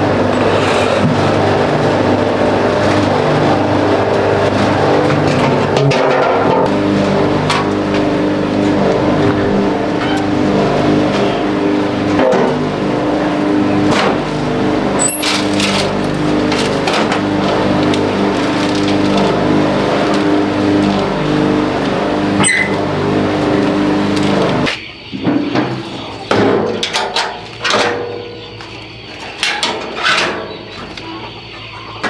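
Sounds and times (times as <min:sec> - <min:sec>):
motor running steadily: 0:00.0 - 0:25.2.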